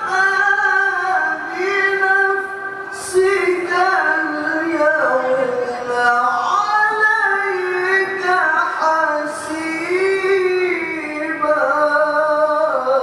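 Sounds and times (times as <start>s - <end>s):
person reciting melodically: 0.0s - 13.0s.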